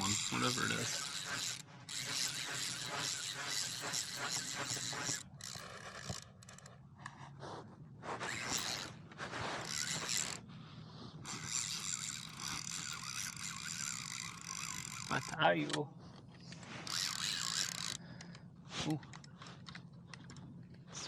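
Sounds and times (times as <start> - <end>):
fishing reel whirring and clicking: 0.0 - 6.8, 8.2 - 10.4, 11.2 - 18.5.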